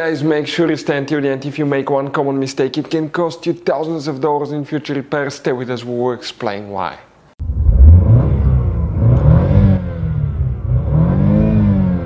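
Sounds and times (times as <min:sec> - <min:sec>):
car engine revving: 0:07.4 - 0:12.0.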